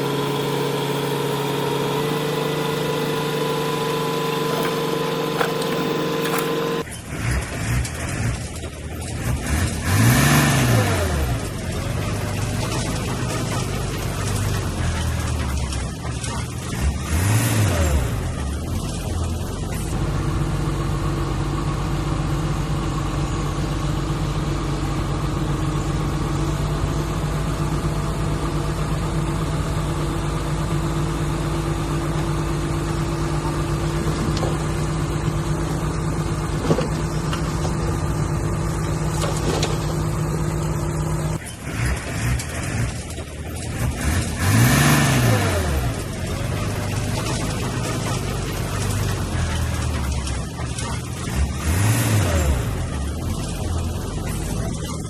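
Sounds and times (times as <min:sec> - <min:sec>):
engine revving: 0:00.0 - 0:20.0, 0:33.4 - 0:55.0
diesel engine running: 0:00.0 - 0:55.0.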